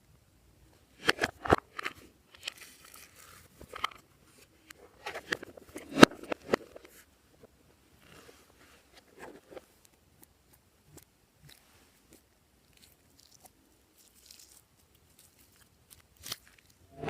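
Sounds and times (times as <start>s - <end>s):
soft crackling of slime: 9.7s - 16.8s.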